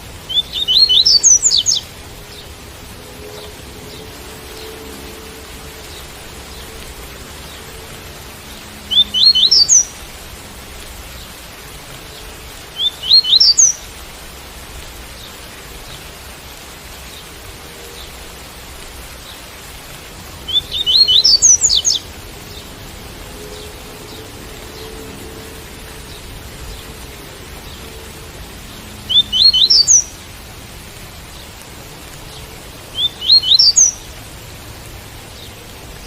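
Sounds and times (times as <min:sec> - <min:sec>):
rain hissing: 0:00.0 - 0:36.0
bird singing whistled notes: 0:00.3 - 0:01.9, 0:08.8 - 0:10.0, 0:12.8 - 0:13.8, 0:20.5 - 0:22.0, 0:29.1 - 0:30.1, 0:33.0 - 0:34.1.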